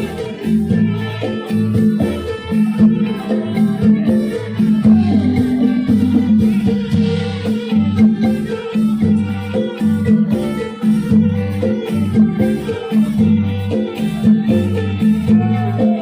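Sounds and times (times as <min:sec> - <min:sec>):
rattles and percussion beat: 0:00.0 - 0:16.0
quick repeated melodic notes: 0:01.5 - 0:16.0.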